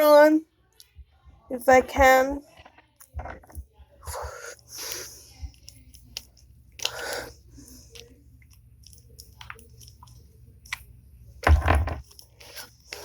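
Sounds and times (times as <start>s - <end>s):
handling noise with thump: 11.4s - 12.0s.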